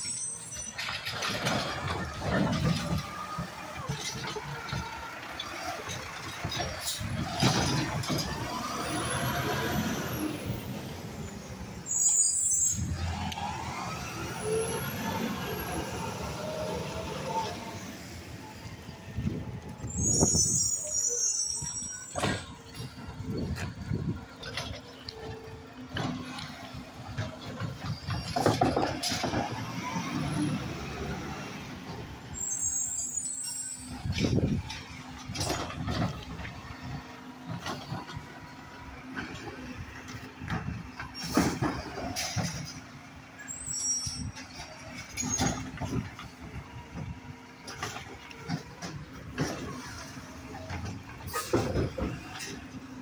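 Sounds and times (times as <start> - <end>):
hydraulic gliding whines: 0.0 - 52.8
garbage truck diesel engine: 0.0 - 53.0.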